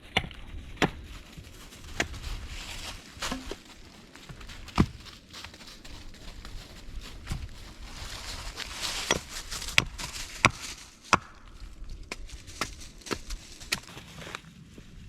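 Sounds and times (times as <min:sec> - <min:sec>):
wood chopping strokes: 0:01.9 - 0:05.0, 0:08.9 - 0:14.3.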